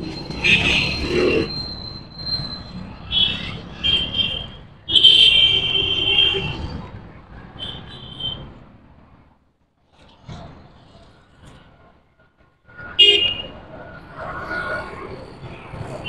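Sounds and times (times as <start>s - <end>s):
vehicle horns honking: 0.4s - 1.5s, 3.1s - 6.6s, 12.9s - 13.5s.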